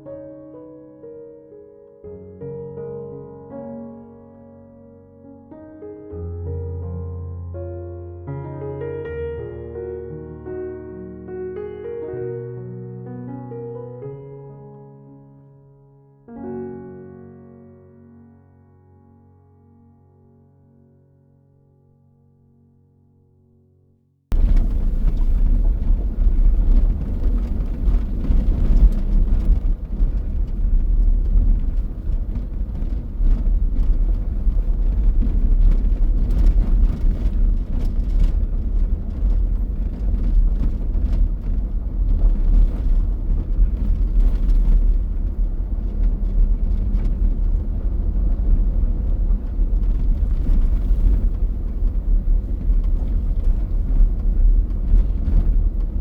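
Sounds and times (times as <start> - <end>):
vehicle engine and tyres rumbling: 24.3 - 56.0.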